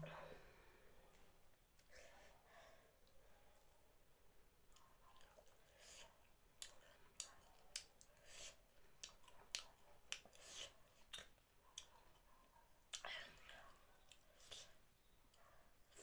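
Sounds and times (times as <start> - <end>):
chewing with wet mouth clicks: 4.7 - 16.0.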